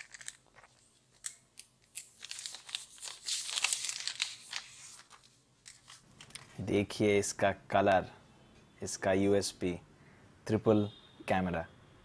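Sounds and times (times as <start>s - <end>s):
plastic film crinkling: 0.0s - 6.6s.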